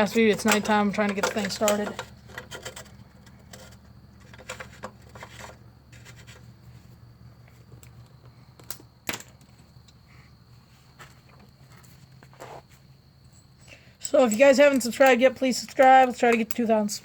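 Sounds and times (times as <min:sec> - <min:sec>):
hand tools clicking on metal parts: 0:00.0 - 0:05.6, 0:14.0 - 0:17.0.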